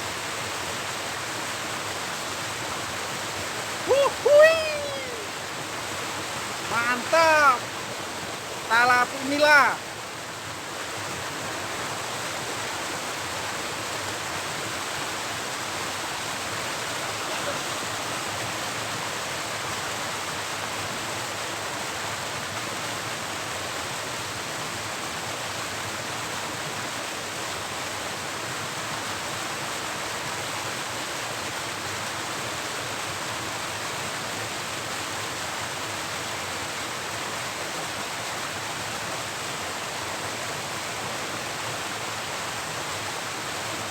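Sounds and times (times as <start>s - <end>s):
river water rushing: 0.0s - 43.9s.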